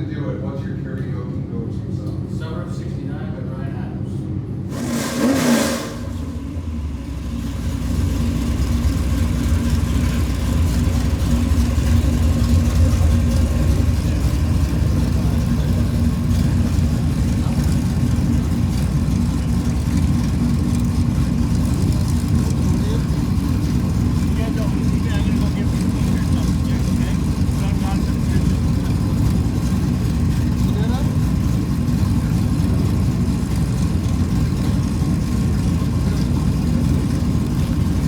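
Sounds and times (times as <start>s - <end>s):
race car engine drone: 3.9s - 38.0s
race car passing by: 4.7s - 6.5s.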